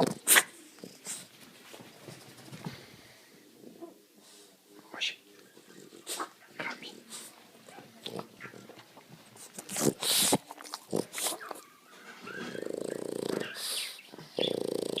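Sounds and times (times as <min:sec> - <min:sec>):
dog snoring: 0:12.4 - 0:15.0.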